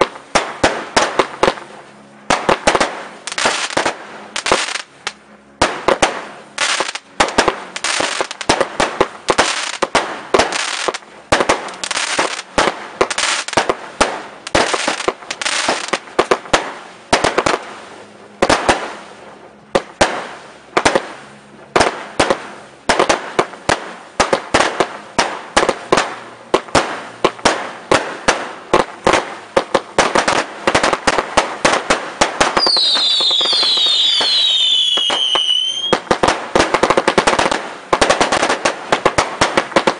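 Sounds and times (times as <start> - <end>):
fireworks bangs: 0.0 - 19.0, 19.7 - 39.9
whistling fireworks: 0.0 - 19.2, 19.8 - 39.9.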